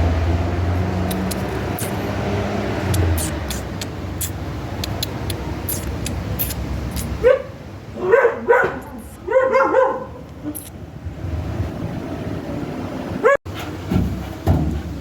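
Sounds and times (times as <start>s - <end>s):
crackles: 1.1s - 2.0s.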